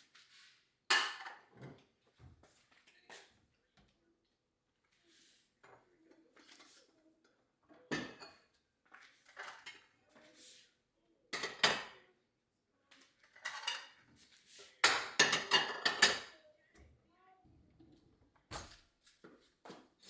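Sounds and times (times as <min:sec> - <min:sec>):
dishes and utensils clinking: 0:07.8 - 0:10.0, 0:11.3 - 0:12.1, 0:13.1 - 0:16.4.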